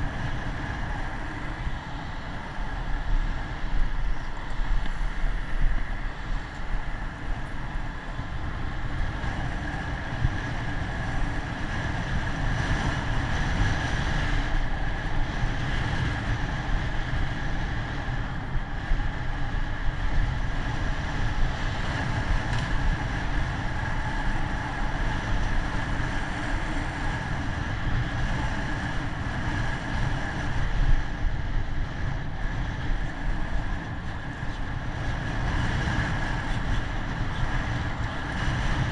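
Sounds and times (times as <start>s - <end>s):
wind noise on microphone: 0.0s - 38.9s.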